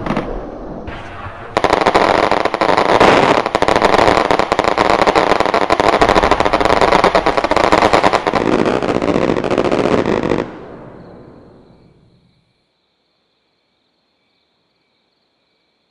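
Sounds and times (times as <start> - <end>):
electronic firecracker crackle: 0.0 - 10.8.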